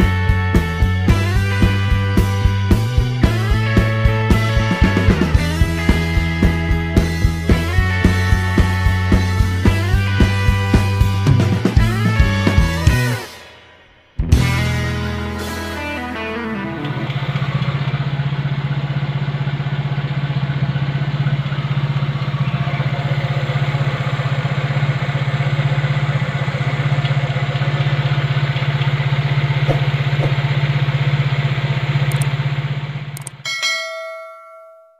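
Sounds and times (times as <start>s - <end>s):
car engine idling: 0.0s - 33.6s
notification ding: 33.4s - 34.9s.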